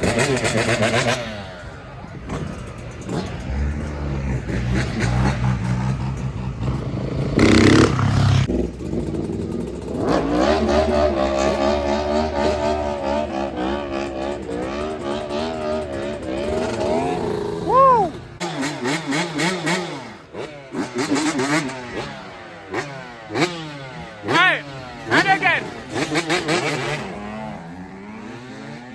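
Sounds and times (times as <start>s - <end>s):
motorbike and quad engines revving: 0.0s - 28.9s.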